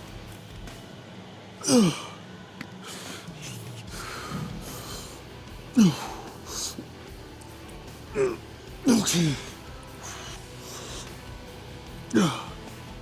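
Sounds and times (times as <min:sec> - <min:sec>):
man grunting with effort: 0:01.6 - 0:02.2, 0:02.8 - 0:06.9, 0:08.1 - 0:11.2, 0:12.0 - 0:12.6
man breathing: 0:01.6 - 0:07.2, 0:08.0 - 0:12.7.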